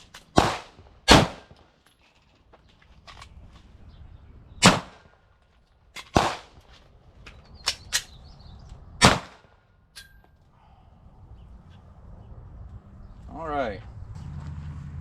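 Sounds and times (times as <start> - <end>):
loud gunshots: 0.3 - 1.5, 4.6 - 5.0, 6.2 - 6.5, 9.0 - 9.5.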